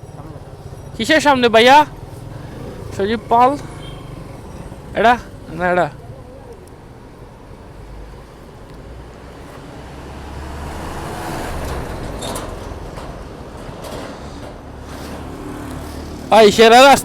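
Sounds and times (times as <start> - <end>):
motorcycle engine: 0.0 - 6.6
road noise: 0.0 - 17.0.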